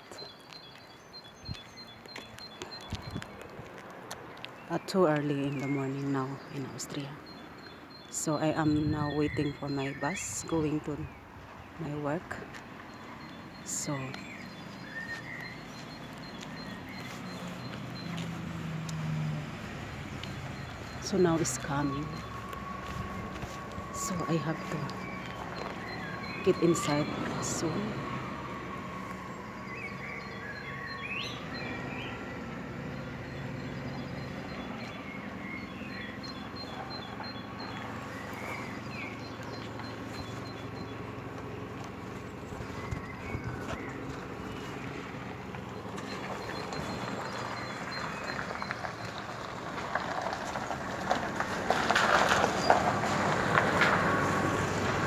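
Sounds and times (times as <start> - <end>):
birds chirping: 0.0 - 55.0
bus diesel engine rumbling: 4.1 - 55.0.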